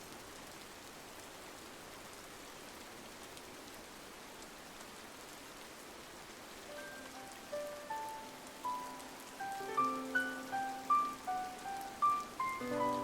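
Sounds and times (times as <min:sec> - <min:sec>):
rain on window glass: 0:00.0 - 0:13.0
raindrop ticks: 0:06.7 - 0:13.0.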